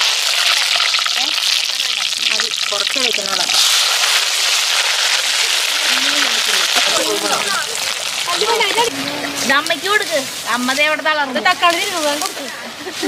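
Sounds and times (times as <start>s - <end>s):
food frying in hot oil: 0.0s - 12.4s
faint voices: 5.4s - 13.0s.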